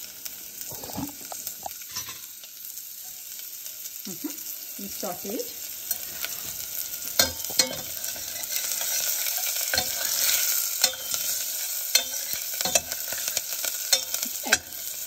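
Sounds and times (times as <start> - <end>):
frying hiss: 0.0 - 15.0
metal spoon stirring in saucepan: 5.9 - 15.0.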